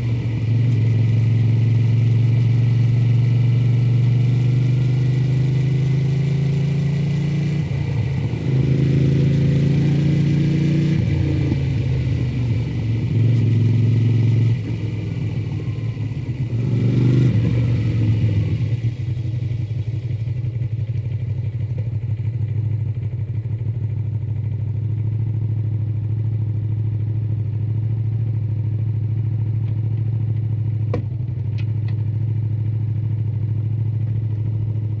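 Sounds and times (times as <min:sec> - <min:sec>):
motorcycle engine: 0:00.0 - 0:35.0.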